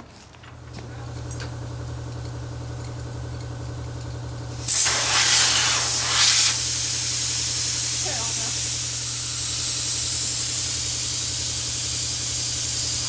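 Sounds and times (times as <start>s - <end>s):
compressed air hissing: 4.6s - 13.0s.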